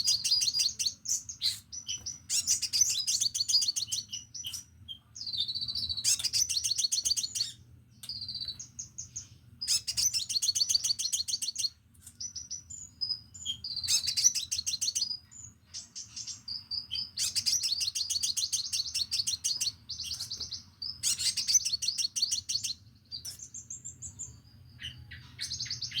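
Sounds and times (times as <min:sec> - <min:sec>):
sunbird trilling song: 0:00.0 - 0:26.0
thin bird chirps: 0:00.0 - 0:26.0.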